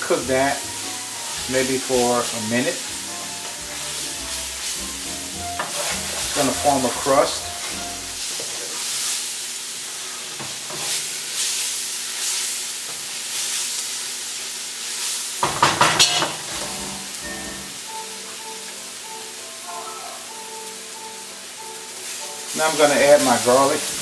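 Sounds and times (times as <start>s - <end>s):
onions sizzling in oil: 0.0s - 24.0s
scraping against a pot: 1.2s - 8.0s.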